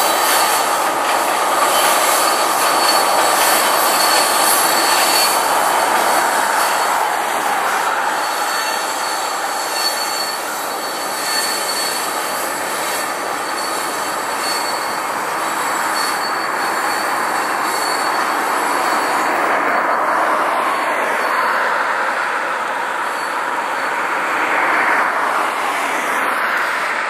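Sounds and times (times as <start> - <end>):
freight train wheels rumbling: 0.0 - 27.0
thin high tone: 1.6 - 20.2.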